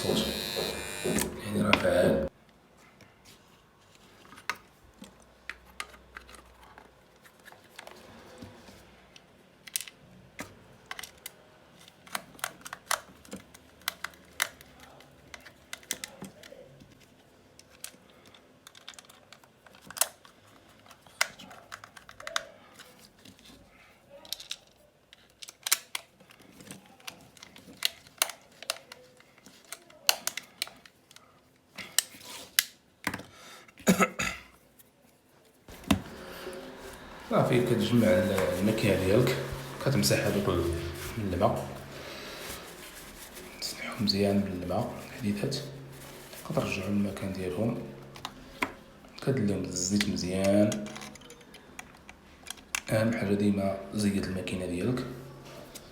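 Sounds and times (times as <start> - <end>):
plastic and metal parts clicking: 9.2 - 23.6, 24.2 - 33.3, 50.0 - 52.9.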